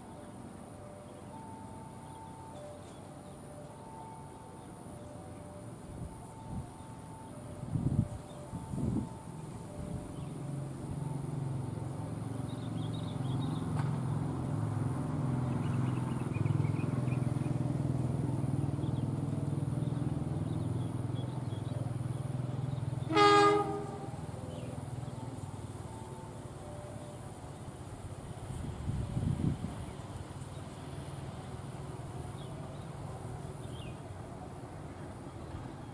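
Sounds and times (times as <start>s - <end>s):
diesel locomotive rumble: 0.0s - 35.9s
train horn blast: 23.0s - 24.4s.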